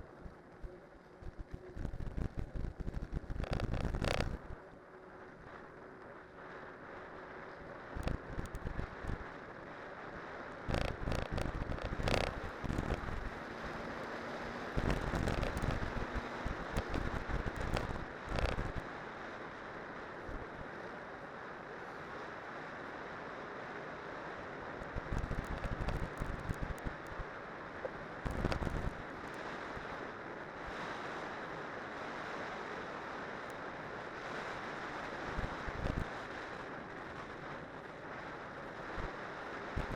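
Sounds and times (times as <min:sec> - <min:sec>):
bike tyres rolling on road: 0:00.0 - 0:31.7
wind on microphone: 0:00.6 - 0:04.6, 0:10.6 - 0:18.9, 0:24.8 - 0:30.0, 0:34.2 - 0:37.6, 0:38.8 - 0:39.9.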